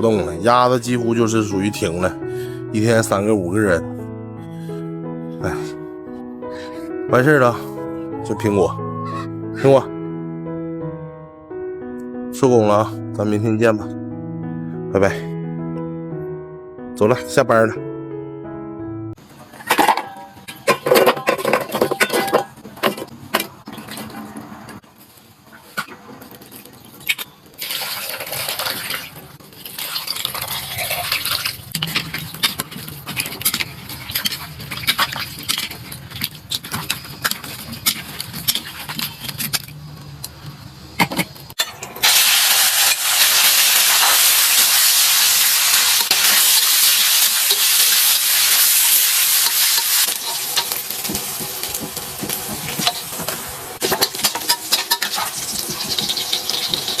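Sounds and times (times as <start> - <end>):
utensil clattering and scraping in wok: 19.6 - 24.6, 27.6 - 39.8, 41.2 - 57.0
food sizzling in hot oil: 27.6 - 35.8, 41.6 - 57.0.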